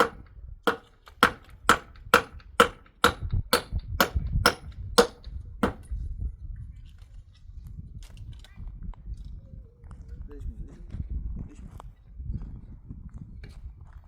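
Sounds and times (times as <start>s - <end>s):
sharp ringing striking blows: 0.0s - 5.9s.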